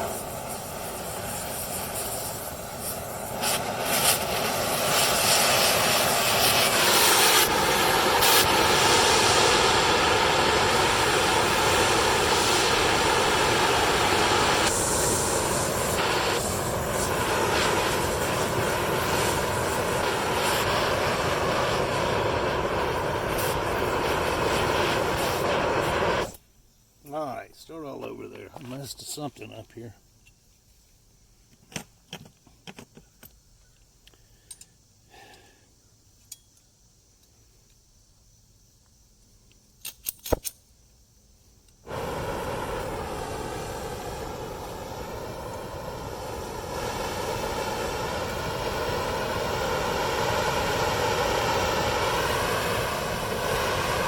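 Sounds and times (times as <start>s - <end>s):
loud hissing machine noise: 0.0s - 26.4s, 41.8s - 54.0s.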